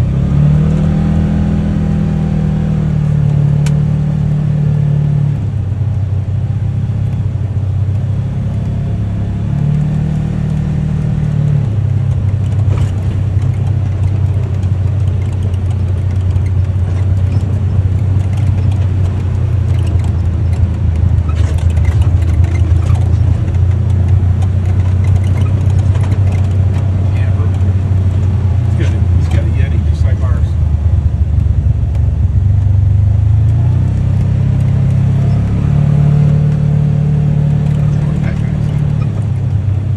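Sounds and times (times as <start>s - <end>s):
vehicle engine droning: 0.0s - 39.9s
short clicks and rattles: 12.1s - 30.5s.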